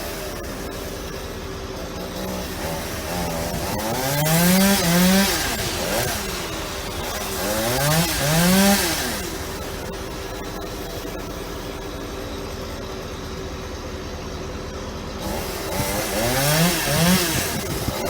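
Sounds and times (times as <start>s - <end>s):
chainsaw cutting wood: 0.0s - 11.4s, 15.2s - 18.0s.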